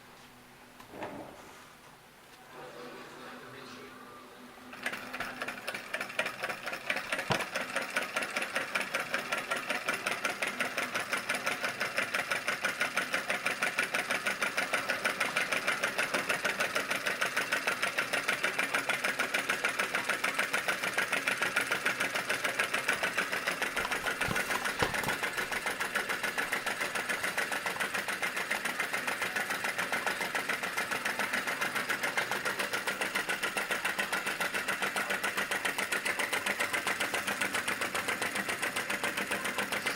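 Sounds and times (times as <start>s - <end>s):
model engine clicking and popping: 4.8s - 13.6s, 21.0s - 39.9s.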